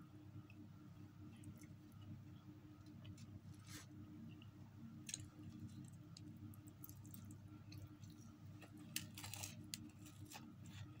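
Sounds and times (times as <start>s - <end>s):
steady low hum: 0.0s - 11.0s
small clicks and crackles: 5.0s - 11.0s.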